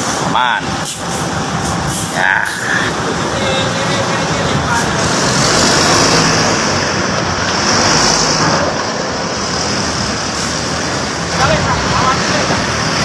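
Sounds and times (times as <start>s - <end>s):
diesel bus engine running: 0.0s - 13.0s
vehicle noise: 0.0s - 13.0s
loud hiss: 0.8s - 2.9s.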